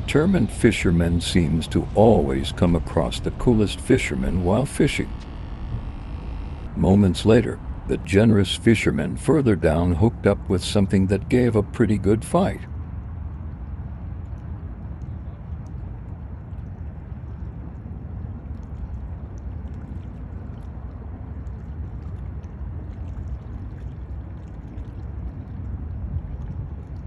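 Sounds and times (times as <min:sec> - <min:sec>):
wind rumble on microphone: 0:00.0 - 0:11.5, 0:12.6 - 0:27.0
water sloshing and lapping: 0:18.2 - 0:27.0.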